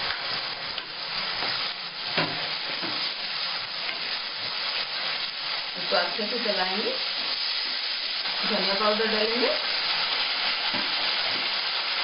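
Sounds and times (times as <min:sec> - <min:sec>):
frying in hot oil sizzle: 0:00.0 - 0:12.0.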